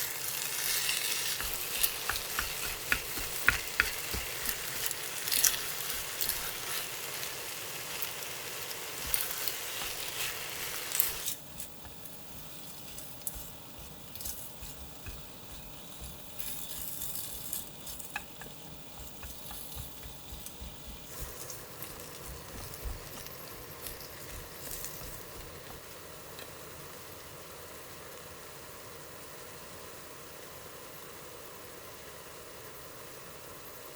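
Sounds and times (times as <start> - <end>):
food sizzling in a frying pan: 0.0 - 33.9
utensils clicking: 0.6 - 7.4, 8.7 - 12.0.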